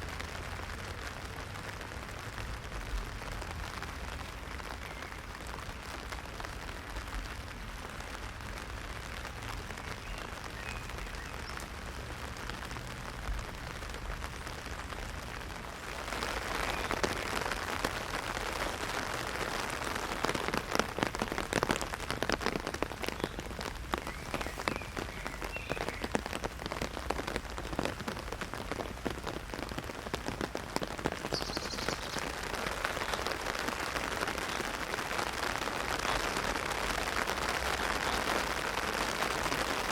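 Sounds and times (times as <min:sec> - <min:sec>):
heavy rain on an umbrella: 0:00.0 - 0:39.9.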